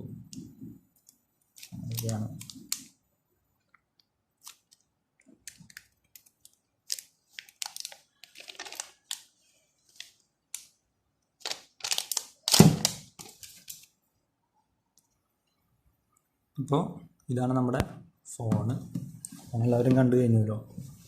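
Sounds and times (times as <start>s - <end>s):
plastic packaging rustling: 1.6s - 2.9s, 5.5s - 10.2s, 11.4s - 13.9s.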